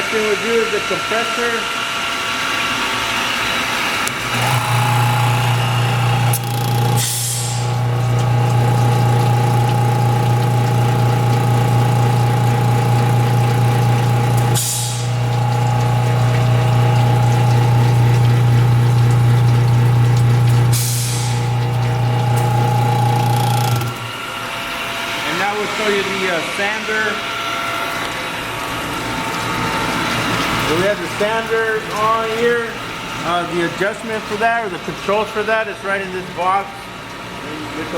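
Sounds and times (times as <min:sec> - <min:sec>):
air compressor humming: 0:00.0 - 0:37.9
short air hisses: 0:07.0 - 0:07.7.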